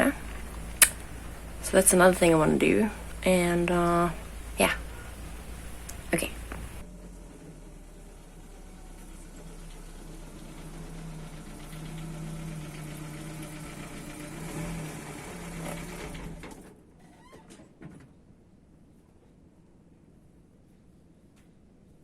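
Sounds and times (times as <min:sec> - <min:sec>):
car engine running: 0:00.0 - 0:16.7.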